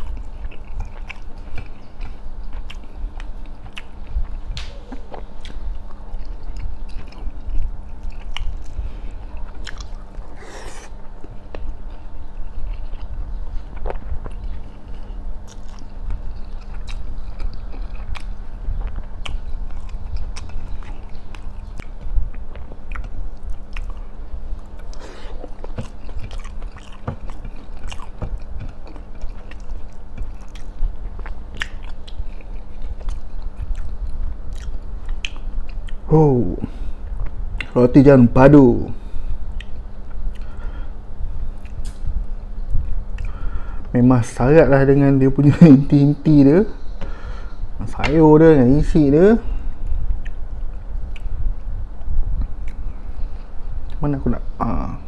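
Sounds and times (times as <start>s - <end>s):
wet chewing and mouth sounds: 0.0s - 36.1s, 37.0s - 37.8s, 39.4s - 43.4s, 49.7s - 54.0s
mouth clicks and smacks: 24.7s - 33.9s, 34.5s - 36.0s, 41.6s - 42.1s, 49.8s - 50.4s, 51.1s - 51.4s.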